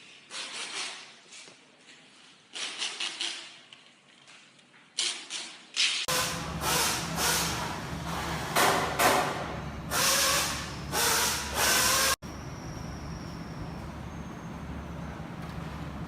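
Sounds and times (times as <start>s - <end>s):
pneumatic tool air hiss bursts: 6.1s - 7.7s, 9.9s - 12.2s
steady machine hum: 6.1s - 16.0s.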